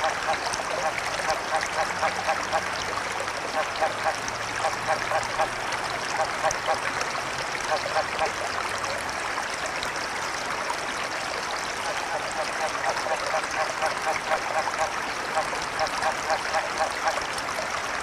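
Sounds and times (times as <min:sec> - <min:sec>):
frogs croaking: 0:00.0 - 0:02.8, 0:03.5 - 0:05.6, 0:11.8 - 0:17.2
flowing river water: 0:00.0 - 0:18.0.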